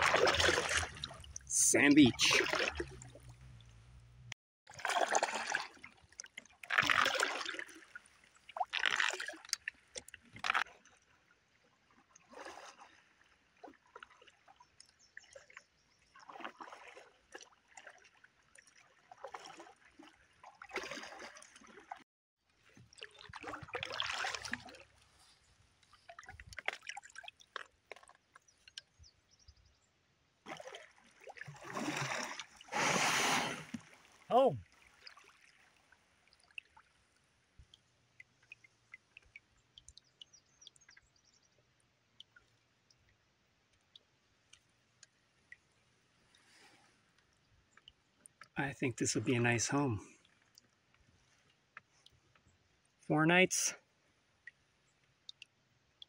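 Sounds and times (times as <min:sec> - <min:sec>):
paddle strokes in water: 0:00.0 - 0:04.0, 0:04.7 - 0:28.9, 0:30.5 - 0:39.4.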